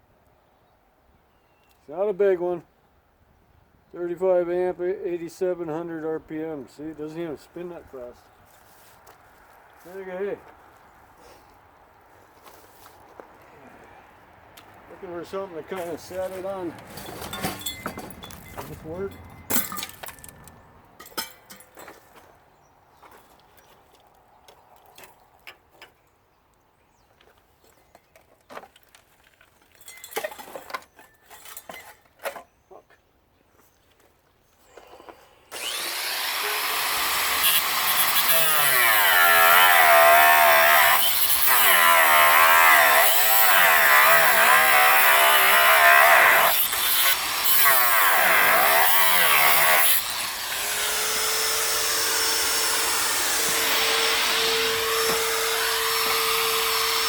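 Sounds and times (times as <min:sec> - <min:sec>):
angle grinder cutting steel: 0:35.5 - 0:57.0.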